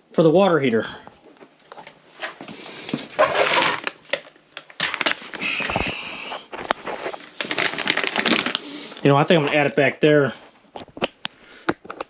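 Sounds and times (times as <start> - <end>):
scraping and rustling: 1.7 - 4.0, 4.9 - 9.8.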